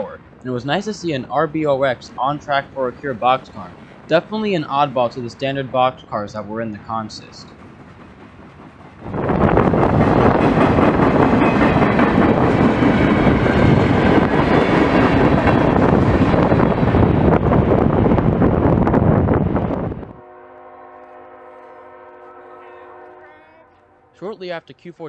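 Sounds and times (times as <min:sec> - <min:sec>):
freight train rumbling past: 0:00.0 - 0:24.5
wheels clicking on rails: 0:00.6 - 0:17.6.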